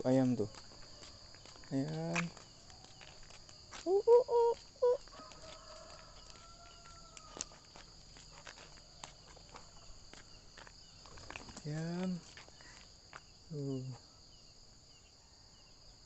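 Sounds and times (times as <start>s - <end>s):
crickets chirring: 0.0s - 16.0s
long arching chicken call: 3.8s - 7.6s.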